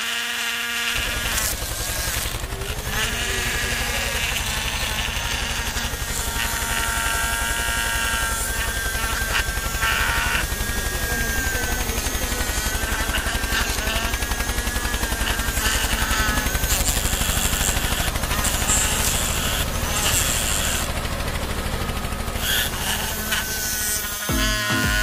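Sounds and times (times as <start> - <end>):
small electric motor whining: 0.0 - 25.0.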